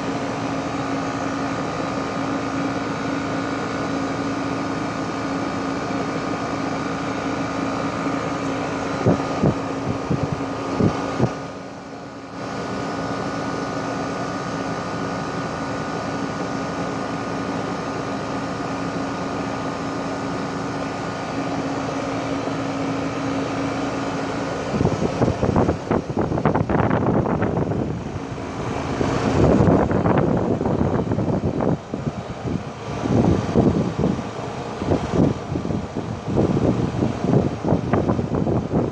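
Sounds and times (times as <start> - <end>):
heat pump humming: 0.0 - 38.9
wind on microphone: 9.0 - 11.4, 24.8 - 38.9.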